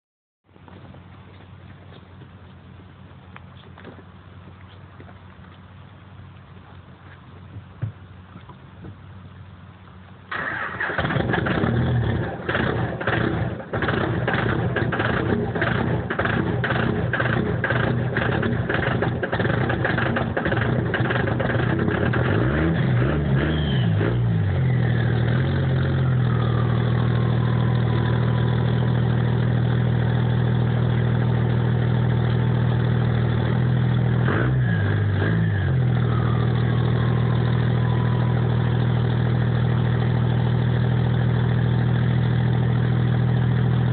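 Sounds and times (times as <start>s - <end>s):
diesel engine starting and idling: 9.0s - 43.9s
engine revving: 10.3s - 43.9s
turbo whistle: 36.0s - 38.7s.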